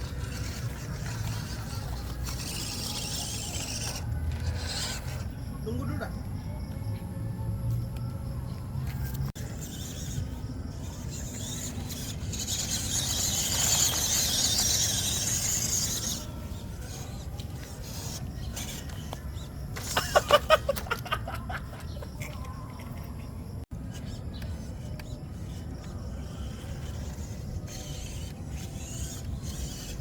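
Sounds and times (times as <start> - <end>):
high squeals: 0.0 - 5.4, 9.0 - 20.2
electric motor and gears whirring: 0.0 - 21.2, 21.9 - 30.0.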